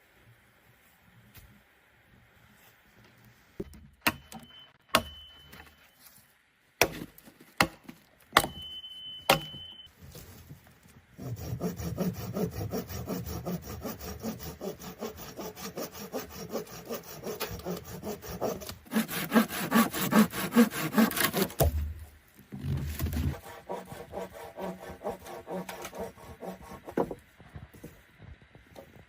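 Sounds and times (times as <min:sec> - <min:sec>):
hand saw cutting: 0:11.2 - 0:21.8, 0:23.1 - 0:27.1.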